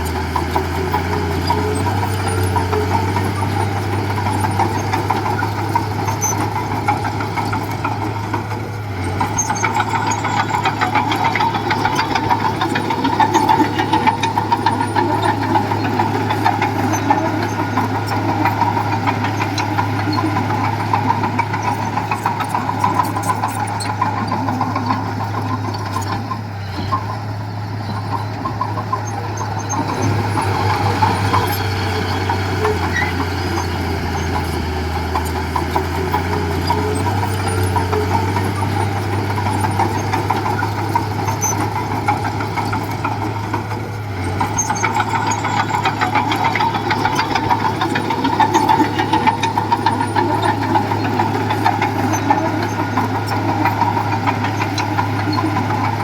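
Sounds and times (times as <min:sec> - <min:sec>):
diesel engine running: 0:00.0 - 0:56.0
fine rattling clatter: 0:00.0 - 0:56.0.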